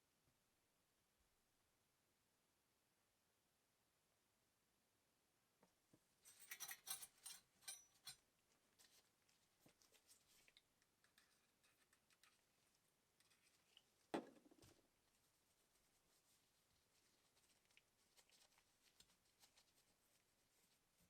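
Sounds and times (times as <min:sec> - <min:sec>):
small clicks and scrapes: 0:06.3 - 0:14.8.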